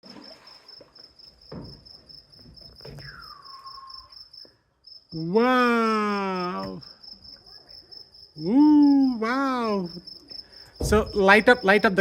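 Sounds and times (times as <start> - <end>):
crickets chirping: 0.0 - 12.0
soft knocks: 1.5 - 3.0, 10.8 - 11.5
falling whistle-like tone: 2.9 - 4.2
person saying wow: 5.2 - 6.8.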